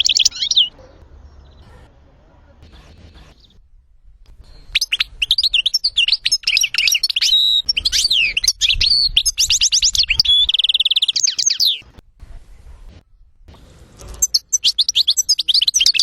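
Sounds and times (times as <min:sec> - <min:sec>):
goldfinch singing: 0:00.0 - 0:01.8, 0:02.7 - 0:03.6, 0:04.4 - 0:11.9, 0:14.1 - 0:16.0.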